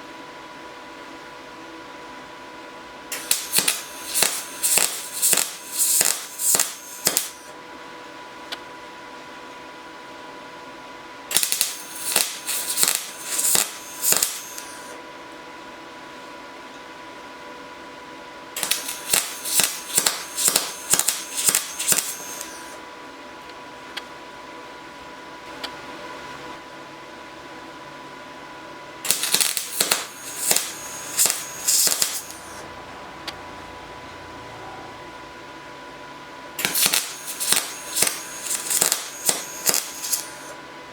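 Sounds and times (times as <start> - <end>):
faint hum: 0.0 - 40.9
welder arc crackling: 3.1 - 7.5, 11.3 - 15.0, 18.6 - 22.8, 29.1 - 32.6, 36.6 - 40.6.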